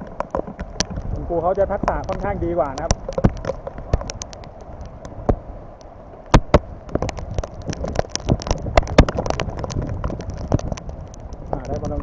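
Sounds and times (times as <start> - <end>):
heavy rain: 0.0 - 12.0
raindrops tapping near microphone: 0.0 - 12.0.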